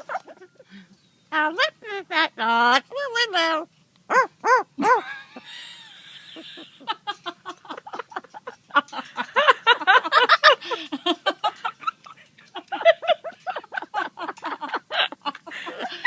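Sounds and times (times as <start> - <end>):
person laughing: 12.6 - 16.0.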